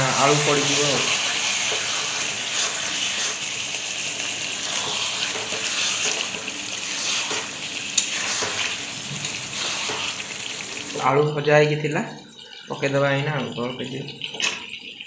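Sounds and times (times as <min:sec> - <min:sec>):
curry sizzling in a wok: 0:00.0 - 0:11.2
ladle scraping a pan: 0:00.6 - 0:03.6, 0:04.5 - 0:10.7.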